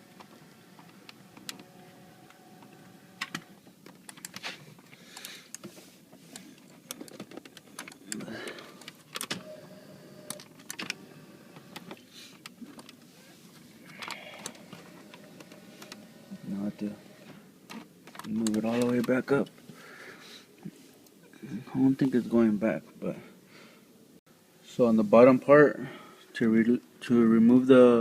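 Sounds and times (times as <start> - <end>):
electric seat motor humming: 0.0 - 3.6, 9.4 - 11.9, 13.9 - 17.4.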